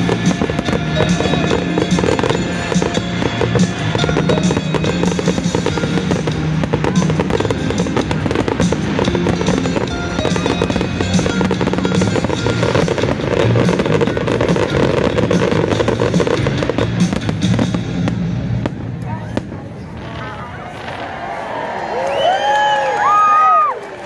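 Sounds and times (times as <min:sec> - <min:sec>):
loud music: 0:00.0 - 0:18.7
fireworks bursting and crackling: 0:00.0 - 0:23.7.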